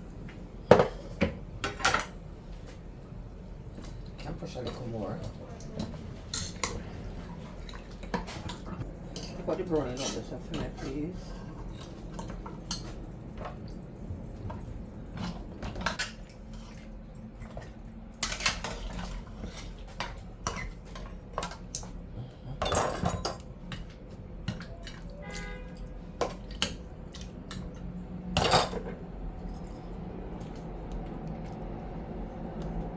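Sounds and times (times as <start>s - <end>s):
clinks of metal and crockery: 22.6s - 23.4s, 28.4s - 29.0s.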